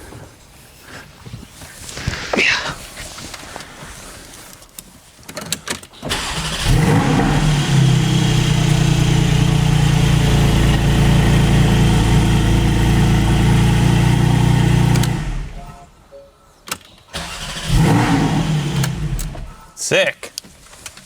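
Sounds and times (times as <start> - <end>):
car engine starting and idling: 6.0 - 15.7, 17.1 - 19.6
starter clicks: 14.9 - 15.3.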